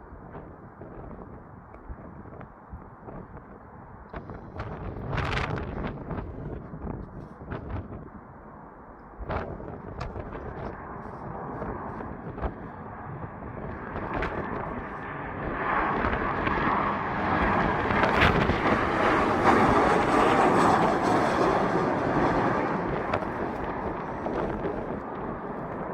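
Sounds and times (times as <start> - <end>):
wind buffeting microphone: 0.0 - 8.4, 9.1 - 25.9
jet engines of landing airliner: 0.0 - 25.9.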